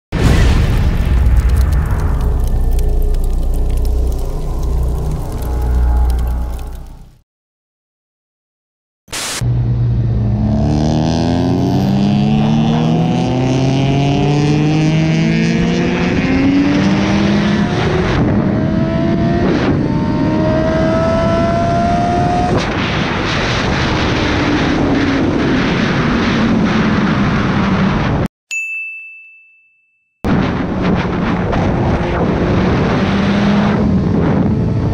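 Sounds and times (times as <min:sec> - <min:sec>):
motorcycle engine accelerating: 0:09.4 - 0:22.6, 0:32.0 - 0:34.9
wind rush: 0:15.9 - 0:28.3.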